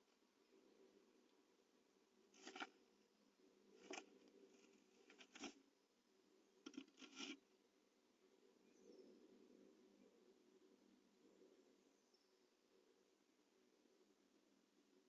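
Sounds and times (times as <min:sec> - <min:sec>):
bird scratching in nest material: 0:02.3 - 0:02.8, 0:03.8 - 0:05.6, 0:06.7 - 0:07.4.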